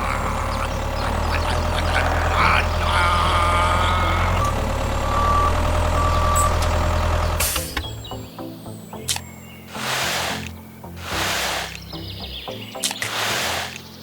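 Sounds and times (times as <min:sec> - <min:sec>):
truck engine drone: 0:00.0 - 0:08.3, 0:09.7 - 0:12.4
reversing beeper beeps: 0:04.1 - 0:07.8.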